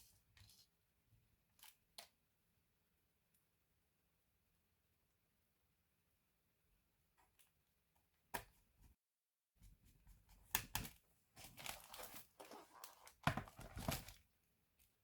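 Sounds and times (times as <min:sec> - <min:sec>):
crinkling handling noise: 0:11.3 - 0:15.0.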